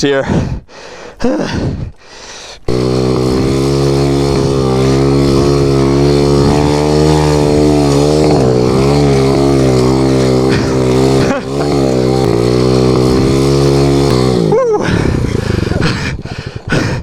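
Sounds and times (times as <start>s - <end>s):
small motorbike engine running hard: 2.6s - 17.0s.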